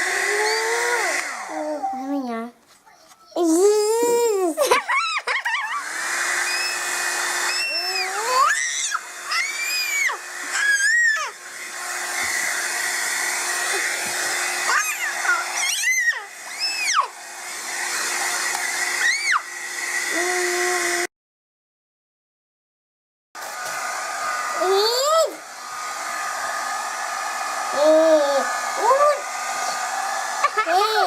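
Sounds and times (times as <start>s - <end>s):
hair dryer running: 0.0s - 1.8s, 3.4s - 21.1s, 23.4s - 31.0s
child squealing: 7.5s - 11.4s, 14.6s - 17.1s, 19.0s - 19.4s, 30.6s - 31.0s.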